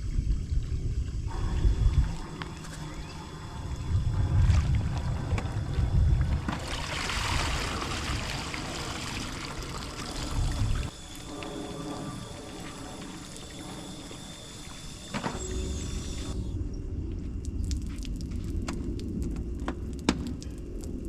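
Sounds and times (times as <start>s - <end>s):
low rumble: 0.0s - 14.8s
pool water splashing: 4.5s - 16.4s.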